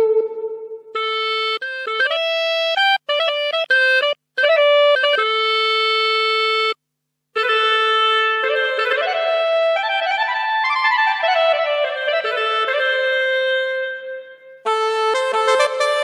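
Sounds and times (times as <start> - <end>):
keyboard solo melody: 0.0 - 6.8, 11.1 - 16.0.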